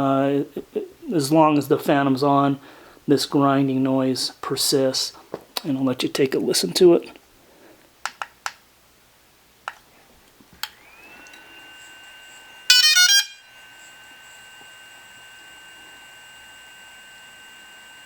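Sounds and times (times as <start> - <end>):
rapid beeps: 12.7 - 13.4
high-pitched electronic whine: 12.7 - 13.5.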